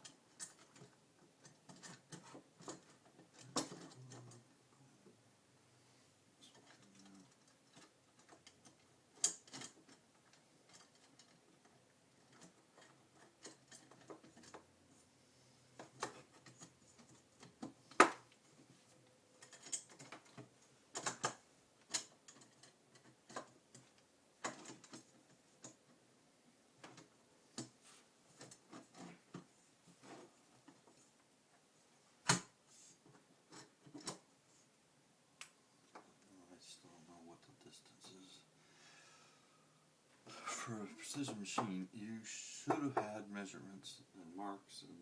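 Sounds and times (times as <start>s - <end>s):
metal frame parts clicking and knocking: 0.0s - 4.4s, 6.5s - 14.7s, 15.8s - 18.7s, 19.3s - 26.0s, 26.8s - 31.0s, 32.2s - 34.3s.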